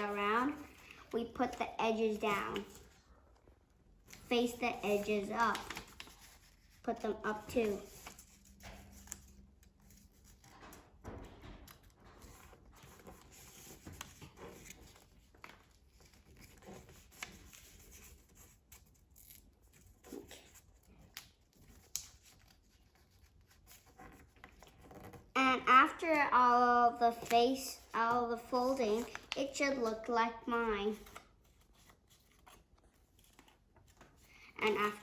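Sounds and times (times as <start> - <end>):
paper rustling while folded: 0.0 - 35.0.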